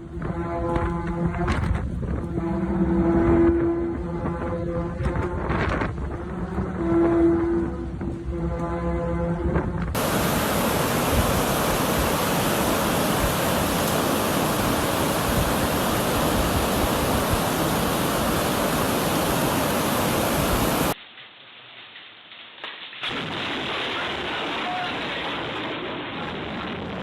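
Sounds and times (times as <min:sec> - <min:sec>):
loud steady rushing noise: 0:09.8 - 0:21.0
steady humming tones: 0:09.9 - 0:21.0.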